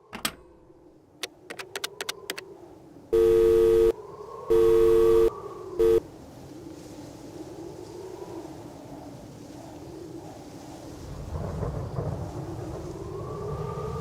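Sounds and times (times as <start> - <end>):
faint steady hum: 2.4 - 6.1
two-note telephone tone: 3.2 - 6.0.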